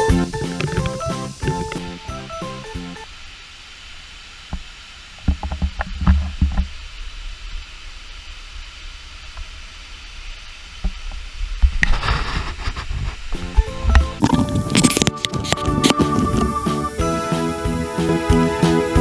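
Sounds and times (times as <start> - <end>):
waterfall rushing: 0.0 - 3.0, 14.2 - 19.0.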